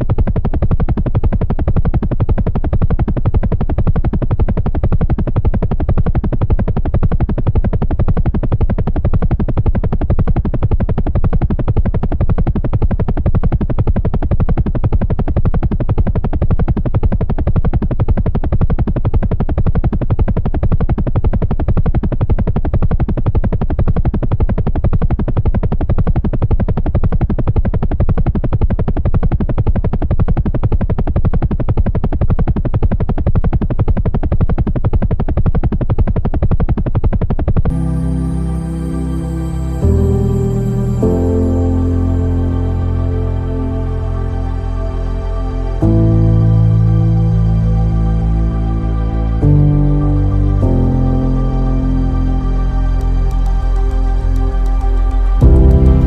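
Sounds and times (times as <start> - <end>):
helicopter rotor chopping: 0.0 - 25.3.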